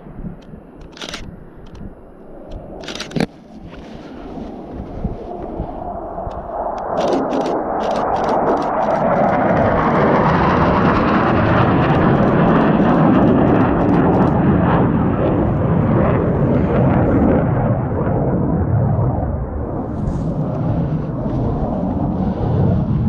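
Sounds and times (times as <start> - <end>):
fighter jet flying past: 0.0 - 23.0
camera shutter clicking: 0.8 - 1.8, 2.8 - 3.3, 6.8 - 9.0.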